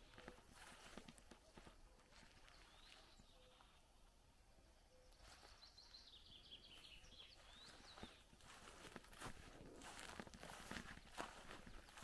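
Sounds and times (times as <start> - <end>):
faint bird chirps: 0.0 - 8.8.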